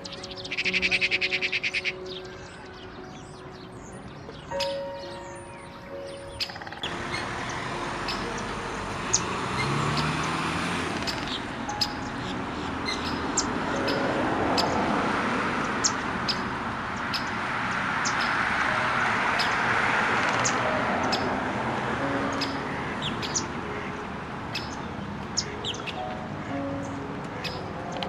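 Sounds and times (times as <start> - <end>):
small birds chirping: 0.0 - 15.0, 15.6 - 19.8, 22.1 - 28.0
rushing background noise: 0.0 - 28.0.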